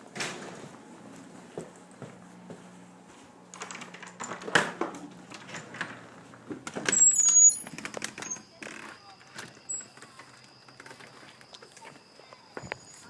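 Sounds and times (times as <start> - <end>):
footsteps in a house: 0.0 - 13.0
door opening with clatter: 3.5 - 13.0
door squeak: 6.8 - 11.9.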